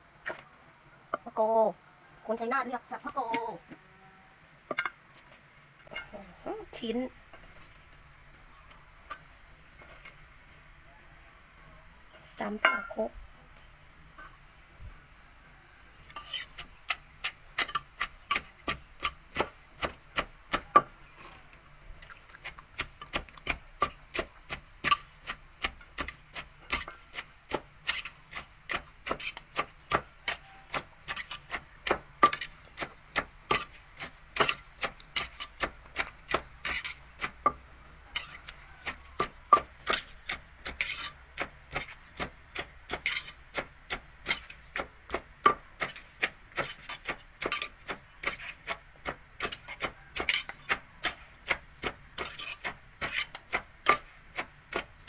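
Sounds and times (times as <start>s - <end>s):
pestle pounding in mortar: 16.9s - 20.9s, 22.4s - 37.6s, 38.2s - 54.9s.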